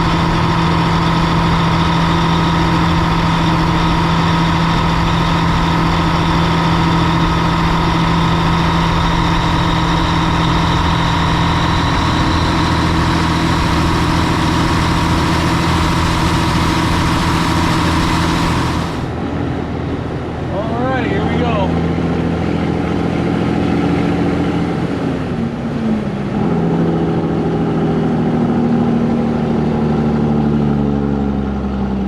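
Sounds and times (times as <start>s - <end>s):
steady whine: 0.0s - 23.2s
heavy diesel engine running: 0.0s - 32.0s.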